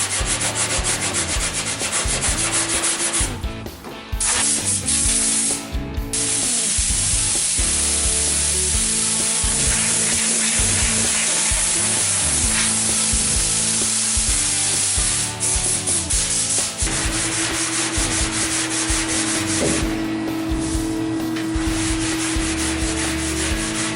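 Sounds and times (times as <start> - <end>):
sanding on car bodywork: 0.0 - 3.3, 9.2 - 14.0
compressed air hissing: 0.0 - 3.4, 4.2 - 23.9
background music: 0.0 - 23.9.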